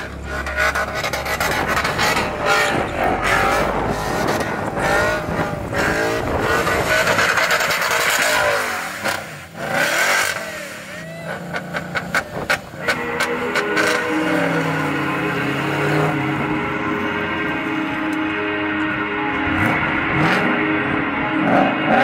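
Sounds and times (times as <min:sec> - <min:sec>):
car engine revving: 0:00.0 - 0:22.0
tires squealing on asphalt: 0:00.0 - 0:22.0.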